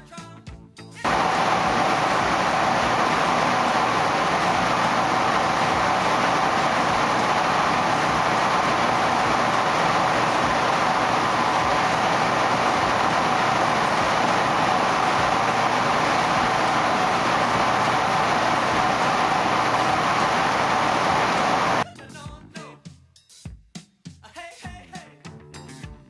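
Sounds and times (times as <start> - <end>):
washing machines running: 1.1 - 21.8.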